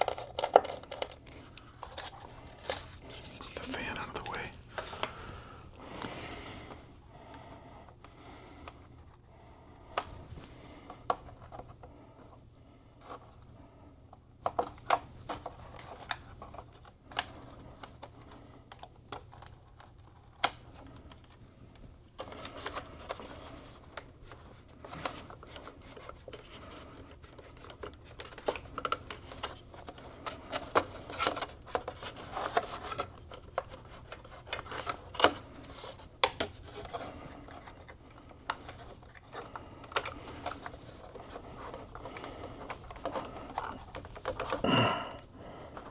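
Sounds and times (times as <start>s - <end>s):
rubbing and rustling: 0.0s - 6.9s, 19.2s - 44.6s.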